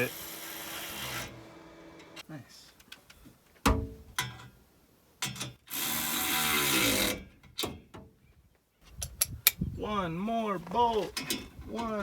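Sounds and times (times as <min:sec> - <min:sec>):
power tool running: 0:00.0 - 0:02.2
metal knocks and clicks from tools: 0:05.2 - 0:05.6.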